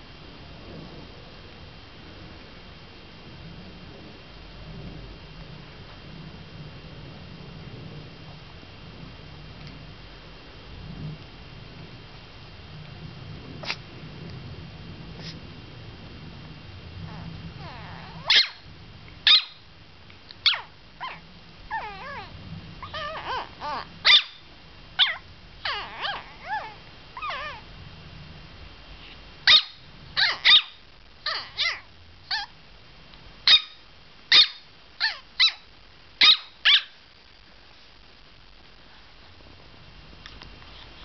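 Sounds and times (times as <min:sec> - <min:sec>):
puppy whining: 0:17.1 - 0:18.6, 0:20.4 - 0:24.4, 0:25.0 - 0:27.7, 0:29.5 - 0:32.5, 0:34.4 - 0:35.6
puppy yipping: 0:17.1 - 0:18.6, 0:19.3 - 0:19.6, 0:20.4 - 0:24.4, 0:25.0 - 0:27.6, 0:29.5 - 0:32.5, 0:33.5 - 0:35.6, 0:36.2 - 0:37.0.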